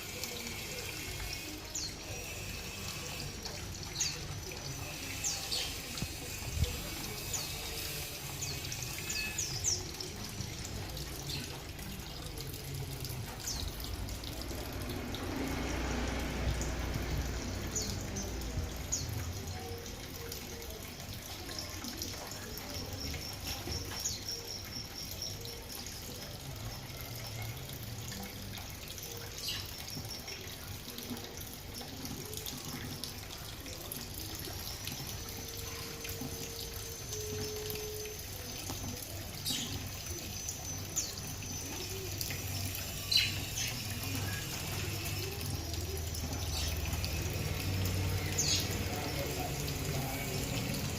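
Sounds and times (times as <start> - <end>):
running water: 0.0 - 50.9.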